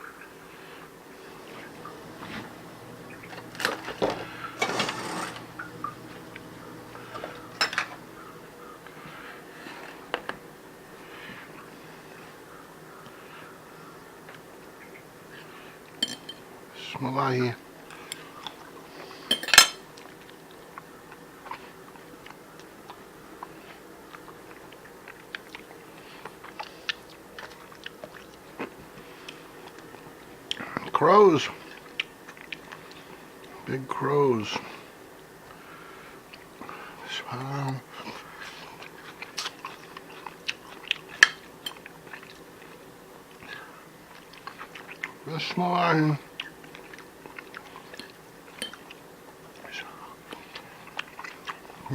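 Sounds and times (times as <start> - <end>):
person chewing food: 17.9 - 30.9, 31.6 - 33.7, 35.4 - 37.0, 37.9 - 45.2, 46.2 - 51.9.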